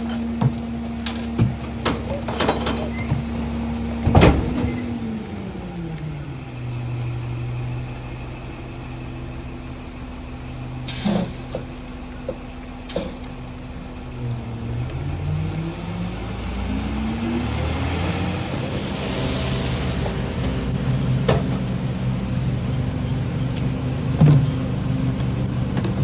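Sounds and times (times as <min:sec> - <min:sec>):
truck diesel engine revving: 0:00.0 - 0:26.0
loud metal clank: 0:04.0 - 0:05.0.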